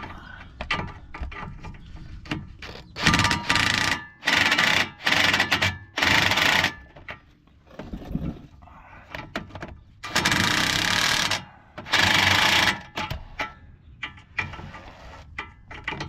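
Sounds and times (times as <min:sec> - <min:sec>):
tools clicking and knocking: 0:15.2 - 0:16.0.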